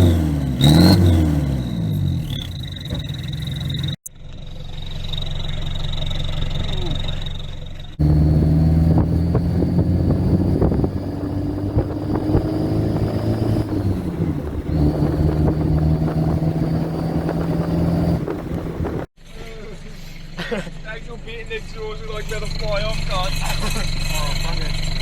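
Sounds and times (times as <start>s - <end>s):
high exhaust whistle: 0.0s - 4.0s
diesel engine running: 0.0s - 25.0s.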